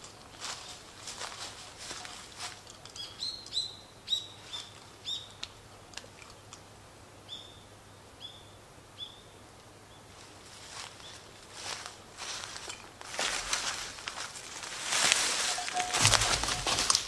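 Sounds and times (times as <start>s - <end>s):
bird chirping: 2.9s - 5.4s, 7.3s - 10.1s.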